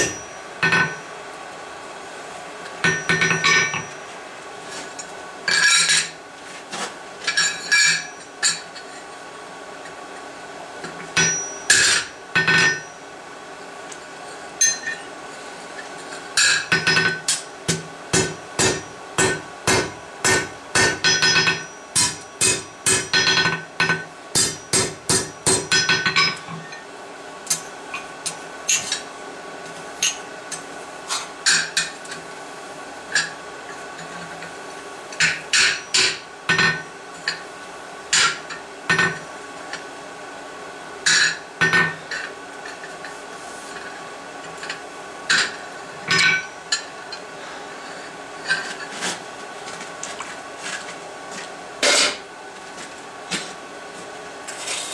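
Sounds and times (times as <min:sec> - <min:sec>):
hammer striking steel on anvil: 0:00.0 - 0:01.0, 0:02.8 - 0:03.9, 0:16.4 - 0:26.4
steady hum: 0:00.0 - 0:54.9.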